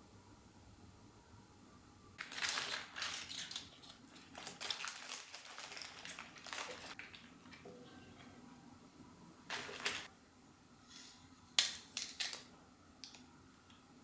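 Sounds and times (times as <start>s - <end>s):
crinkly wrapping rustling: 2.2s - 8.0s, 9.5s - 10.1s.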